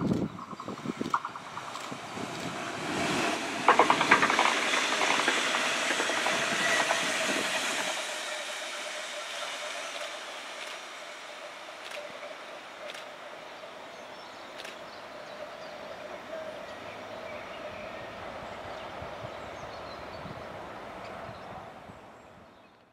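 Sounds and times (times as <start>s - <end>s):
wheels clicking over rail joints: 0.0s - 13.2s
train wheels rushing on rails: 0.0s - 21.3s
faint train whine: 0.0s - 22.5s.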